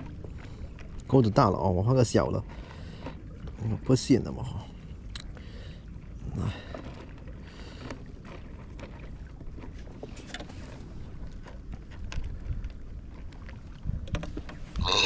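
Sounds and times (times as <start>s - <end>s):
wind rumble on microphone: 6.0s - 15.0s.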